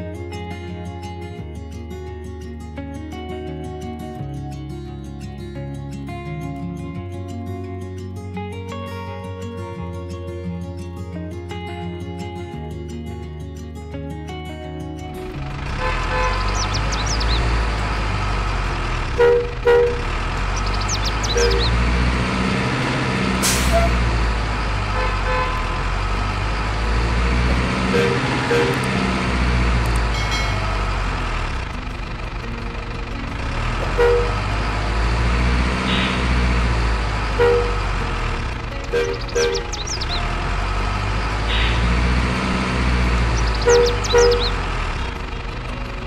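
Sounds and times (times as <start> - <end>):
truck engine revving: 15.2 - 46.0
air brake hiss: 23.4 - 23.9.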